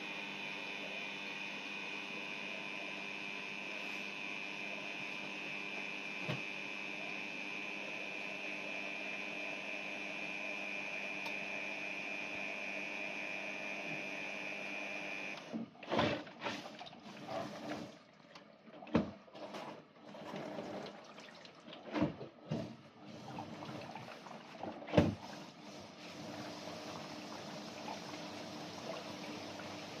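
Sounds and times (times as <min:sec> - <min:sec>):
dishwasher whine: 0:00.0 - 0:30.0
water sloshing and spraying: 0:15.8 - 0:22.3, 0:23.0 - 0:30.0.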